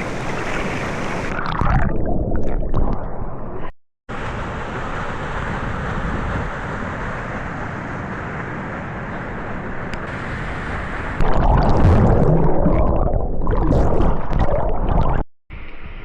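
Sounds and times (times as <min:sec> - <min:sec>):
waterfall rushing: 0:00.0 - 0:01.3.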